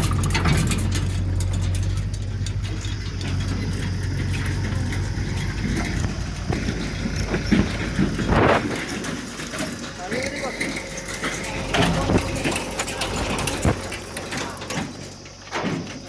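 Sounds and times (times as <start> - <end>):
diesel machinery engine running: 0.0 - 16.0.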